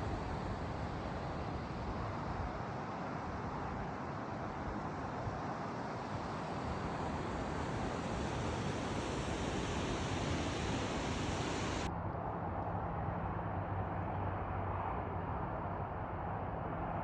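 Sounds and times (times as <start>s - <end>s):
water rushing over falls: 0.0s - 11.9s.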